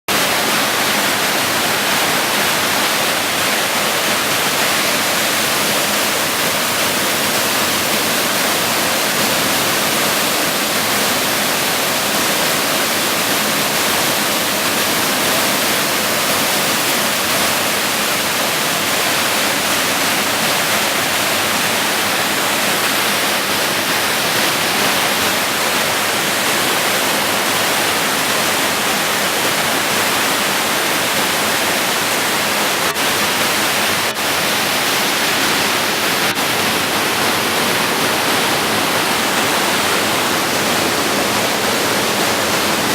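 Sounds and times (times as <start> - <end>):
waterfall rushing: 0.1 - 42.9.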